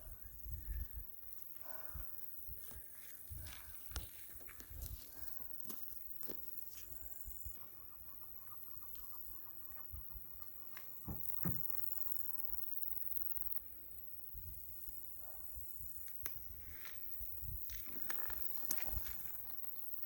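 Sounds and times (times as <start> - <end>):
crickets chirping: 0.0 - 20.0
rapid chirp-like pulses: 5.8 - 17.4
light thumps and rustles: 11.0 - 11.7.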